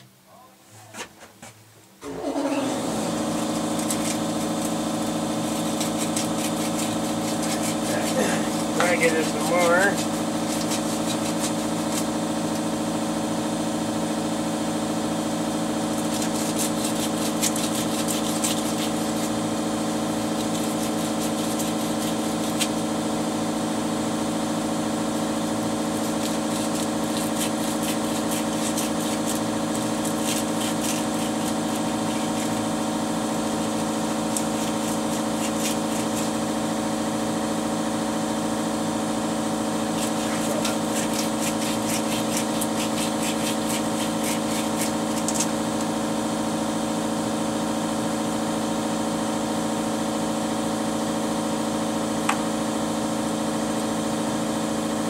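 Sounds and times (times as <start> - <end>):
small electric motor humming: 2.1 - 47.2
scratchy grinding contact: 5.5 - 12.0, 16.0 - 19.3, 26.0 - 32.6, 34.3 - 36.4, 39.9 - 45.5.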